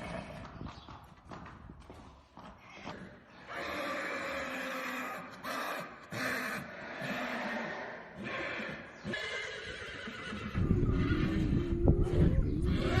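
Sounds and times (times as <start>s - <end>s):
horse whinnying: 3.5s - 13.0s.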